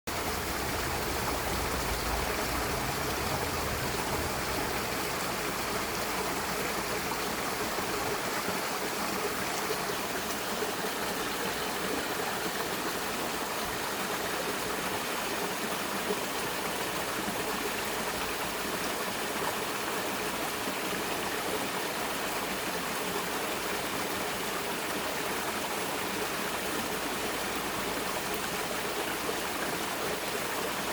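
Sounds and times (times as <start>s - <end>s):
low rumble: 0.1s - 6.2s
stream rushing over rocks: 0.1s - 30.9s.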